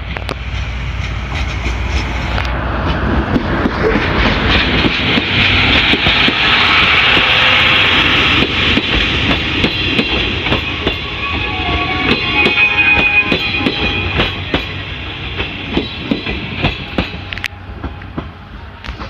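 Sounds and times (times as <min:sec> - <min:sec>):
wheels clacking over rail joints: 0:00.0 - 0:07.5, 0:11.8 - 0:19.0
diesel locomotive passing: 0:00.0 - 0:19.0
wheels hissing on rails: 0:00.0 - 0:19.0.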